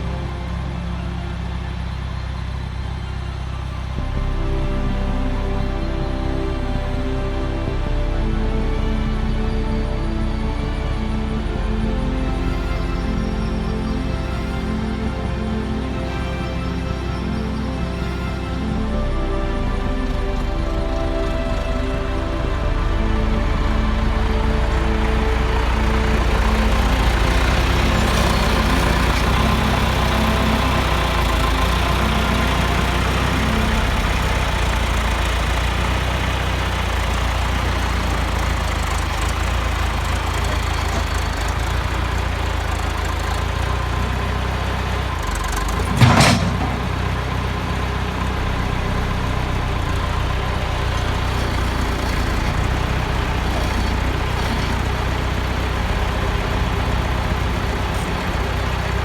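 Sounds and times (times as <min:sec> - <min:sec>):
tractor engine running: 0:00.0 - 0:59.0
sharp clunk: 0:45.8 - 0:47.2.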